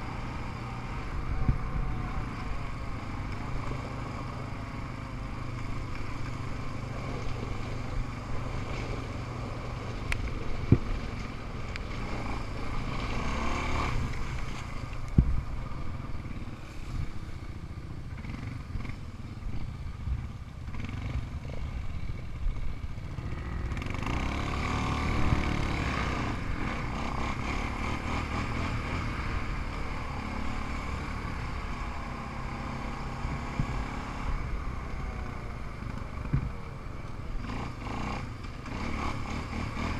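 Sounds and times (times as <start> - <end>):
off-road engines running: 0.0 - 39.9
engine revving: 11.8 - 14.7, 23.1 - 36.5, 37.3 - 39.9.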